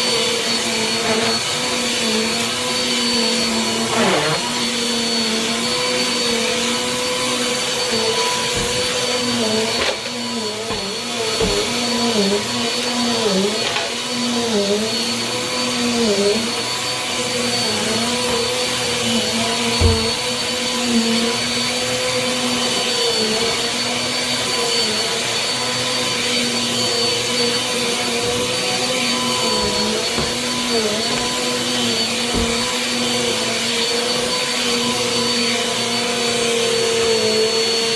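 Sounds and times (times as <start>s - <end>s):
vacuum cleaner running: 0.0s - 37.9s
thump: 19.8s - 20.2s.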